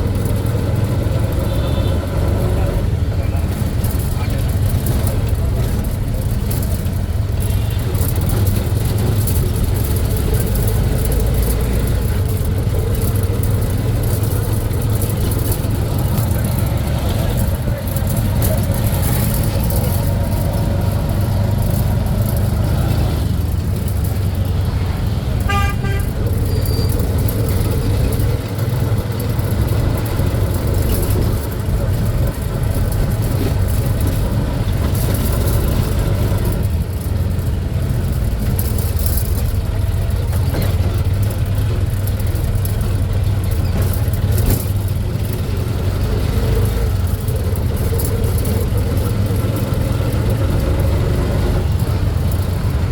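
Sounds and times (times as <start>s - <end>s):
vehicle driving rumble: 0.0s - 52.9s
horn toot: 25.4s - 26.8s.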